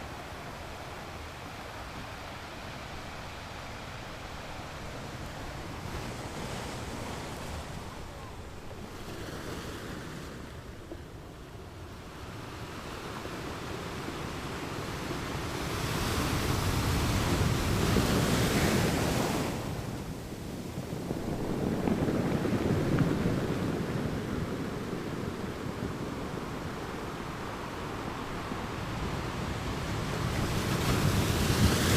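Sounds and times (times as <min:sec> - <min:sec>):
sea waves breaking: 0:00.0 - 0:11.3, 0:13.3 - 0:31.9
wind buffeting microphone: 0:13.5 - 0:31.9.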